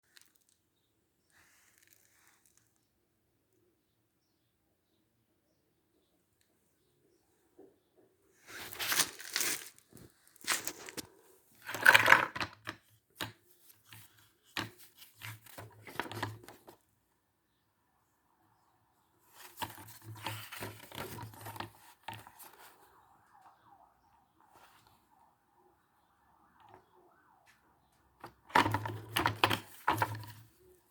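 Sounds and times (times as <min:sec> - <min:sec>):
tearing and crinkling: 0:08.5 - 0:11.8.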